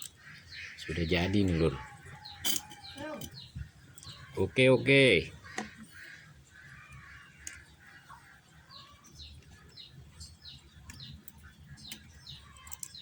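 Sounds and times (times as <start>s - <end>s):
small bird chirping: 0.0s - 13.0s
faint clicks: 6.9s - 7.7s.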